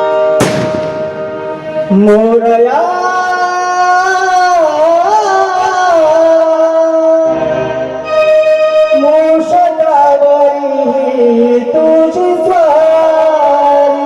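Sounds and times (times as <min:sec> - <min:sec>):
instrumental accompaniment: 0:00.0 - 0:14.0
person singing devotional song: 0:01.7 - 0:14.0.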